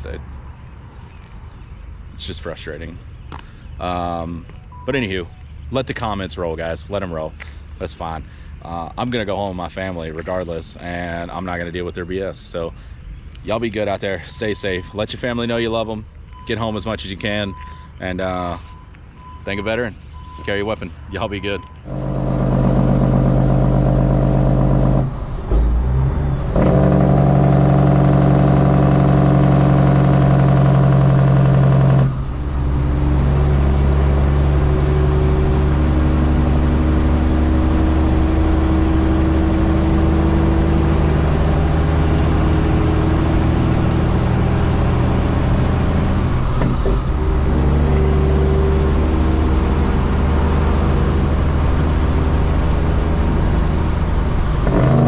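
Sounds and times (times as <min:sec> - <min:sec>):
diesel truck engine under load: 0:13.2 - 0:55.0
turbo whistle: 0:26.5 - 0:46.2, 0:46.8 - 0:55.0.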